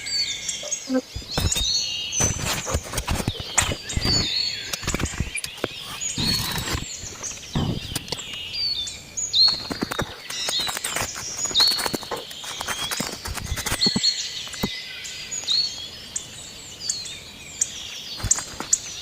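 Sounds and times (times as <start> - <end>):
birds chirping and calling: 0.0 - 19.0
sharp knocks and clicks: 1.1 - 8.4, 9.4 - 14.7.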